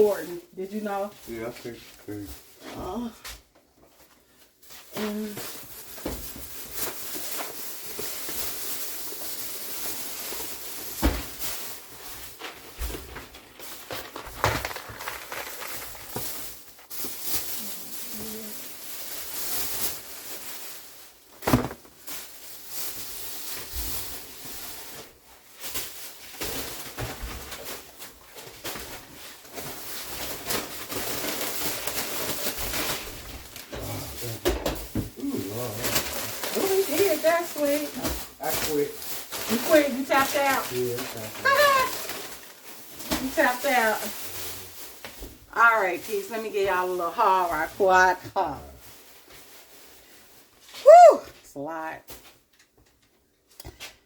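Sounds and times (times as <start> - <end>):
grocery bags rustling: 0.0 - 54.0
items knocking down on surface: 13.8 - 16.4, 21.4 - 22.0, 33.7 - 35.1.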